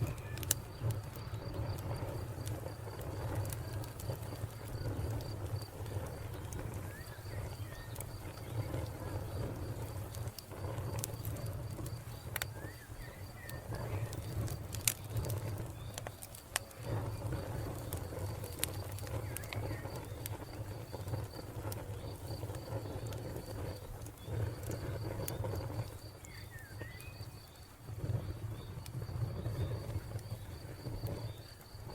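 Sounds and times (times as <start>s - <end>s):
cricket chirping: 0.0s - 31.9s
wood fire crackling: 0.0s - 31.9s
bird chirps: 26.2s - 27.4s.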